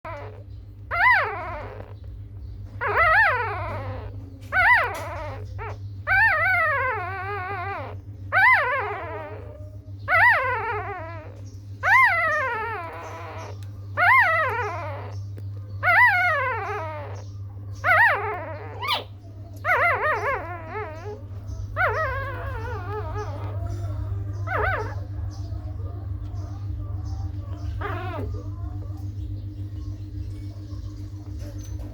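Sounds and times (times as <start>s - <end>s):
puppy whining: 0.0s - 31.9s
steady low hum: 0.0s - 31.9s.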